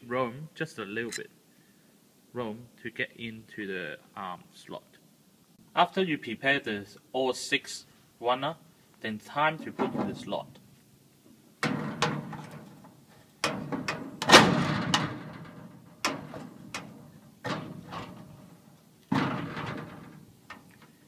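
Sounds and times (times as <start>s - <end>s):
metal clanks and knocks: 11.6s - 20.7s.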